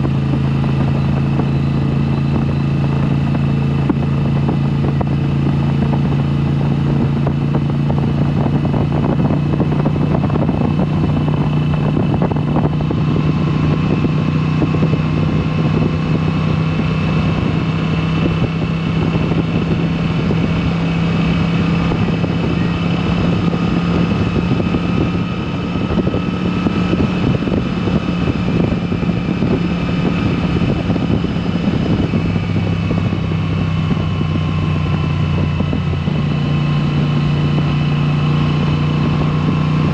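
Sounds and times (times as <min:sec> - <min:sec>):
motorcycle v-twin engine running: 0:00.0 - 0:39.9.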